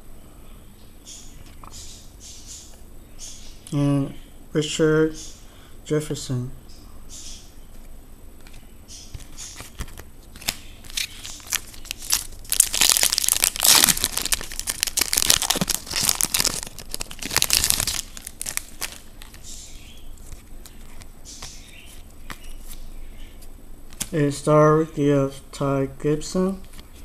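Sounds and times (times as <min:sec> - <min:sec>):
foil wrapper tearing and crinkling: 0:09.6 - 0:19.5.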